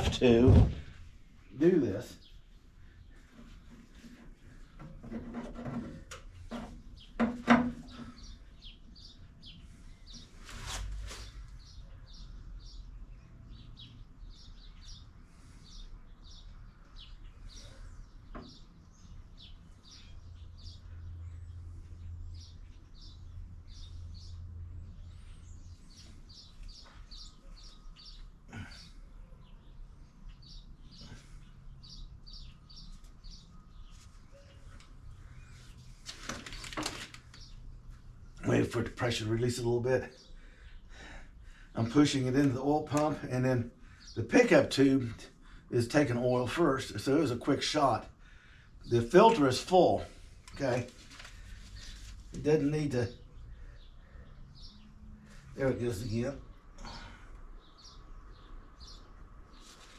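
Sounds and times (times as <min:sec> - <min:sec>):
dull thump: 0:00.0 - 0:01.0.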